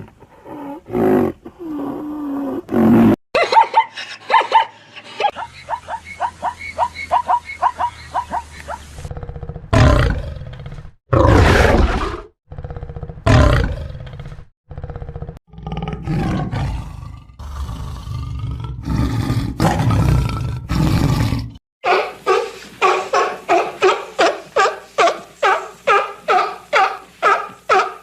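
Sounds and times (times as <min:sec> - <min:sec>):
big cat roaring: 0:09.1 - 0:21.6.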